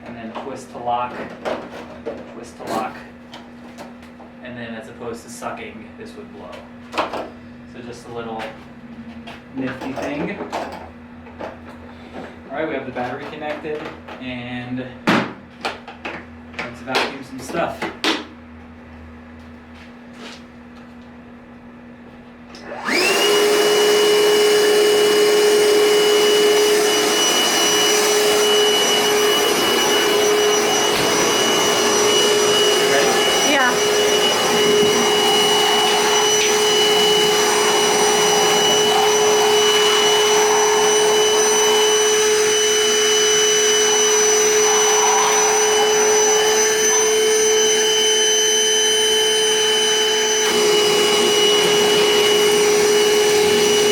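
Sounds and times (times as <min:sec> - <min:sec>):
vacuum motor whining: 0:22.5 - 0:53.9
rush of suction: 0:35.2 - 0:47.9.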